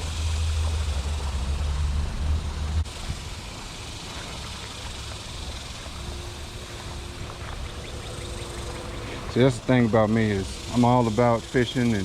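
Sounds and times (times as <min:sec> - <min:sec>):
loud low rumble: 0:00.0 - 0:03.5
steady hiss: 0:00.0 - 0:12.0.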